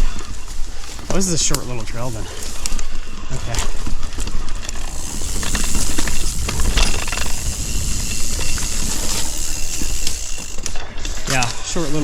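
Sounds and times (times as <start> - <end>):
tyre rumble: 0.0 - 11.4
bike clicks and rattles: 0.0 - 12.0
wind on microphone: 4.9 - 10.2.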